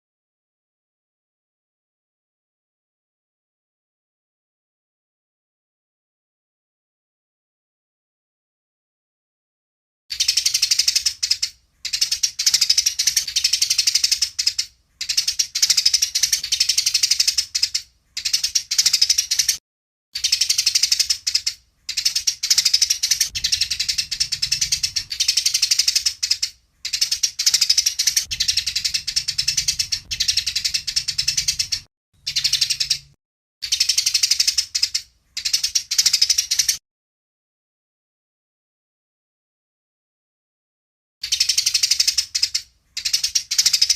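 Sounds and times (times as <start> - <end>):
sparrows harsh chatter: 10.1 - 19.6, 20.2 - 36.8, 41.2 - 43.9.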